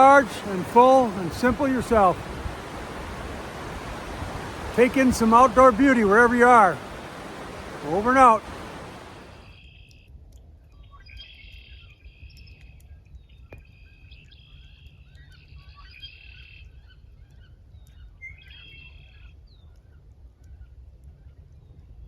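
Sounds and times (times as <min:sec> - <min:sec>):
songbirds trilling: 0:00.0 - 0:09.5.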